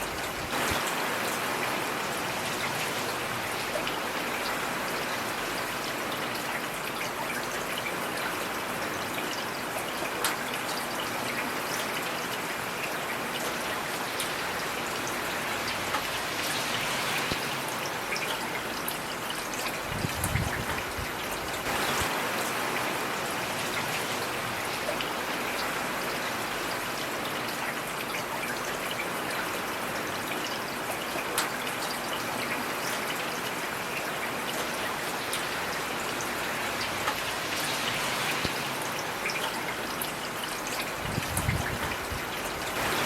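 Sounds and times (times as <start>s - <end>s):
heavy rain hissing: 0.0s - 5.8s, 14.0s - 18.2s, 19.8s - 26.9s, 34.8s - 43.0s
raindrops striking close by: 0.0s - 43.0s.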